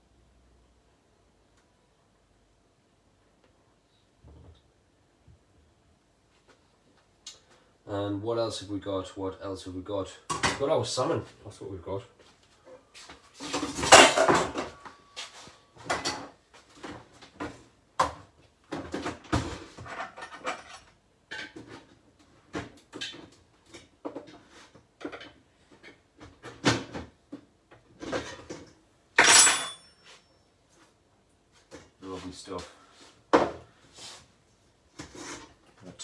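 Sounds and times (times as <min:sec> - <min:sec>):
dishes and utensils clattering: 0:13.4 - 0:14.8, 0:18.8 - 0:21.8, 0:28.0 - 0:30.0.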